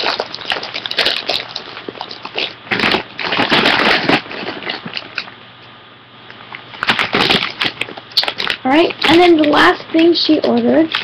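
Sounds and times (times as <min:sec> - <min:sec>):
plastic packaging crinkling: 0:00.0 - 0:05.4, 0:06.5 - 0:11.0.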